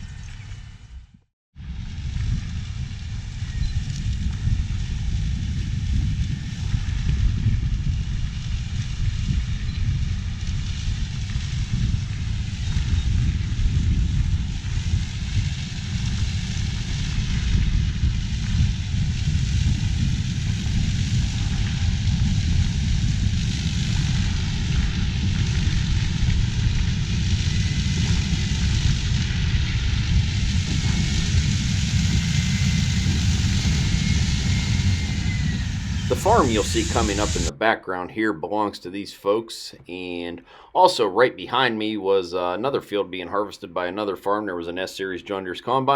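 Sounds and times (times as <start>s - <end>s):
combine harvester rumbling: 19.2s - 37.5s.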